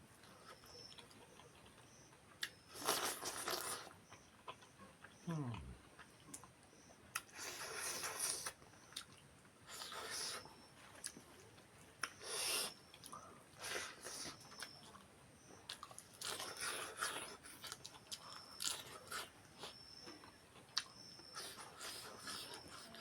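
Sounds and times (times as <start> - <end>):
person chewing and crunching: 0.2 - 6.5, 7.1 - 23.0.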